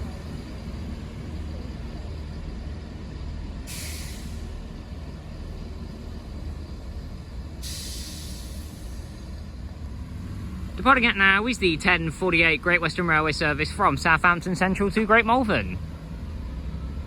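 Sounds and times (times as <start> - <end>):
train engine idling rumble: 0.0 - 17.0
compressed air hissing: 3.7 - 4.5, 7.6 - 9.3.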